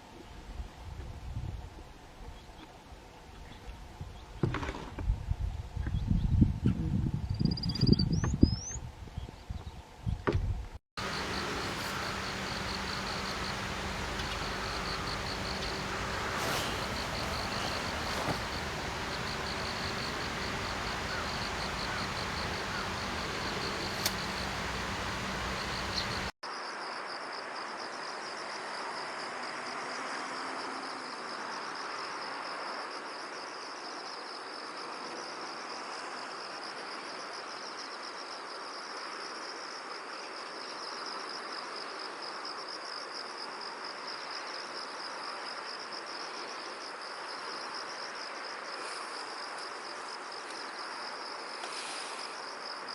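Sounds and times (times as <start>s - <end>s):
background hiss: 11.0s - 26.3s
insects chirring: 11.0s - 26.3s.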